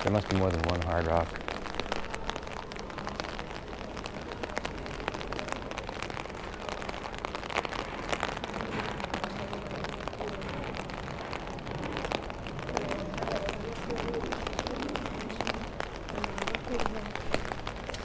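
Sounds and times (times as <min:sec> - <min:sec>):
raindrops tapping close by: 0:00.0 - 0:18.0
steady rain: 0:00.0 - 0:18.0.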